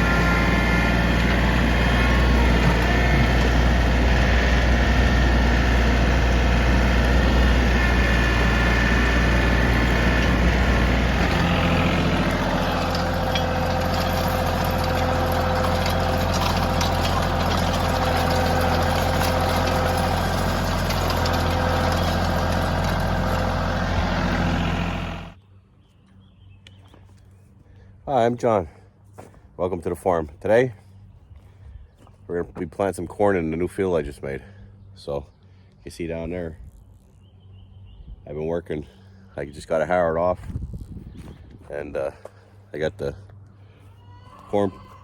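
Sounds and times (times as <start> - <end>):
diesel engine running: 0.0 - 25.4.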